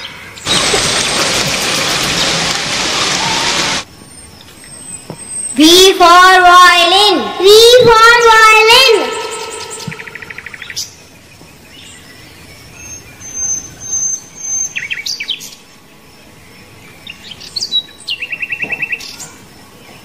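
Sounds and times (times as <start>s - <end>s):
rapid bird trill: 8.2s - 11.0s
small birds chirping: 8.8s - 20.0s.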